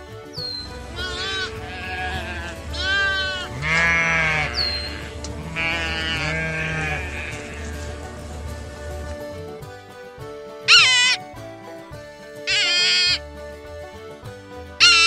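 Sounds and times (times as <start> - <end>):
soft background music: 0.0 - 15.0
sheep bleating: 0.7 - 9.2, 10.7 - 11.2, 12.5 - 13.2, 14.8 - 15.0.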